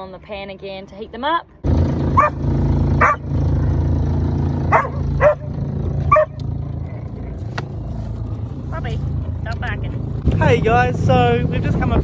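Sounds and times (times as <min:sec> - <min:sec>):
boat engine humming: 0:01.6 - 0:12.0
dog barking: 0:02.2 - 0:02.4, 0:03.0 - 0:03.2, 0:04.7 - 0:06.4.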